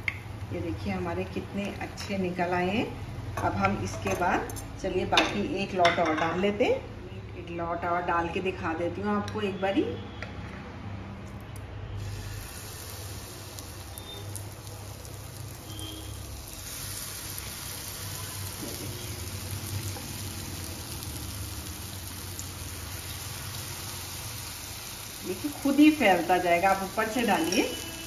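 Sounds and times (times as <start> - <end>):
batter sizzling in frying pan: 12.0 - 28.0.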